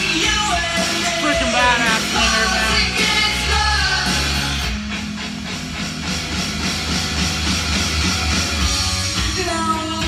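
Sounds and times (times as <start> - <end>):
man singing: 0.0 - 4.2
hard rock guitar bass and drums: 0.0 - 10.0.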